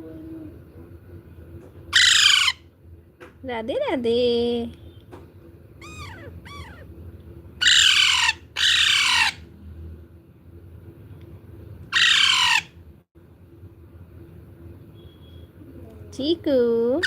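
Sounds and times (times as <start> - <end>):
parrot chirping: 1.9 - 2.7, 5.8 - 6.9, 7.6 - 9.5, 11.9 - 12.8
parrot squawking harshly: 1.9 - 2.7, 5.8 - 6.9, 7.6 - 9.5, 11.9 - 12.8.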